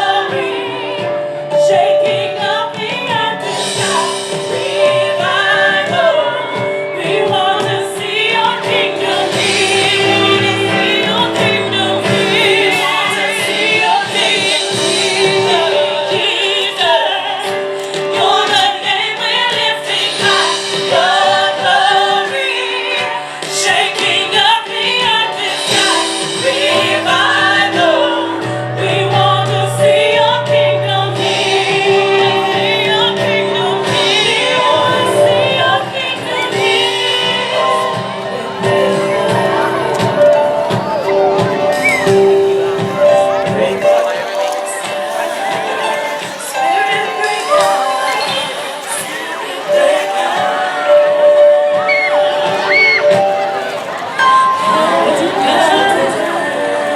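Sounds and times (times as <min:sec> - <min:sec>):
drums: 0:00.0 - 0:56.9
piano: 0:00.0 - 0:56.9
women singing gospel: 0:00.0 - 0:56.9.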